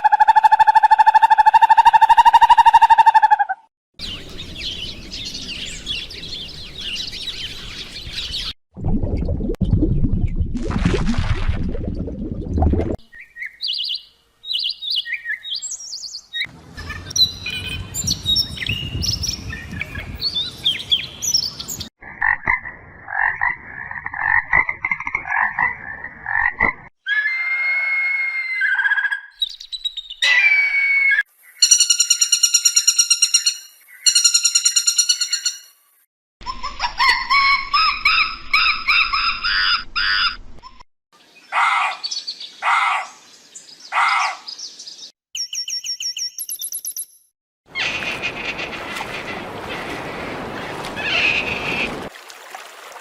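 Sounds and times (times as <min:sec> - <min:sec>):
bird chirps and song: 0:04.0 - 0:08.6, 0:13.0 - 0:21.9, 0:28.6 - 0:30.6, 0:31.4 - 0:35.7, 0:37.3 - 0:47.2.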